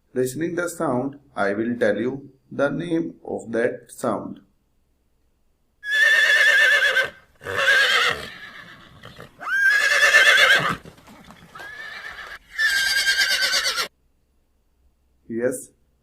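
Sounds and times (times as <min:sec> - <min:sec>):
horse whinnying: 0:05.8 - 0:13.9.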